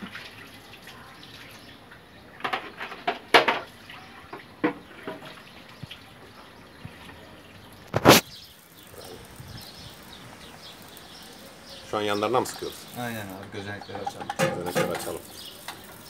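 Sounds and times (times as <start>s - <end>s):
liquid spraying and dripping: 7.0s - 16.0s.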